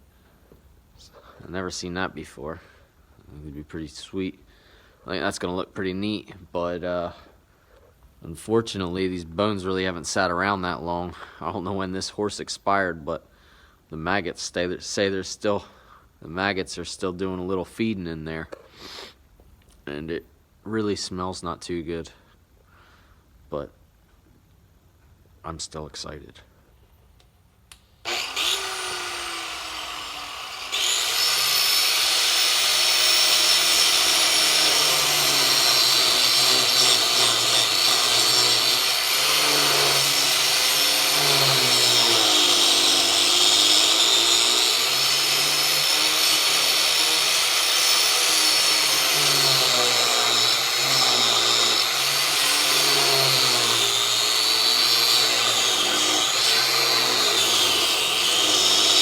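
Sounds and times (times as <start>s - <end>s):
power tool cutting bone: 28.1s - 59.0s.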